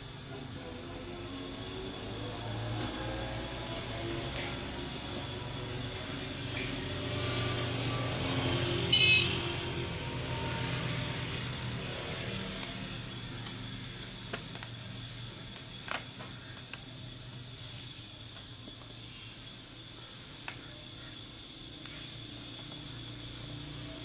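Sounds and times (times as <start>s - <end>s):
vehicle engine passing by: 0.7s - 13.3s.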